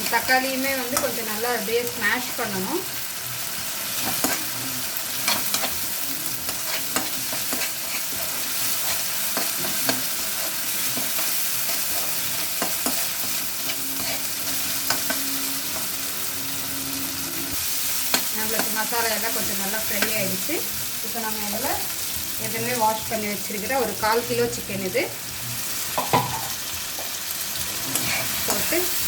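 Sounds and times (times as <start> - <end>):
masala sizzling in oil: 0.0 - 29.0
spatula scraping a pan: 5.1 - 16.2.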